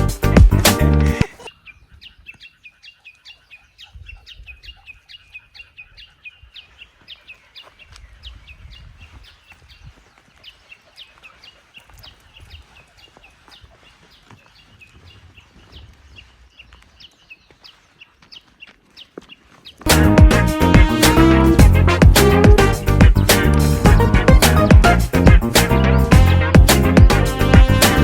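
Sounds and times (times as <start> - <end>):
background music: 0.0 - 1.4, 19.9 - 28.0
bird chirping: 0.0 - 20.4, 21.3 - 27.3.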